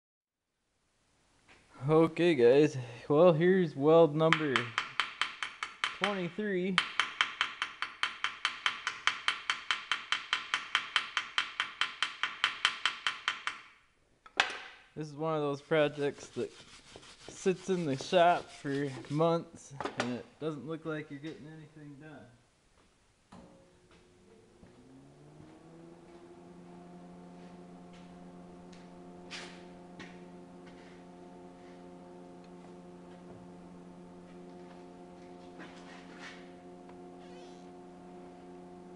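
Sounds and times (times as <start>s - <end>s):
motor hum: 22.8s - 38.9s.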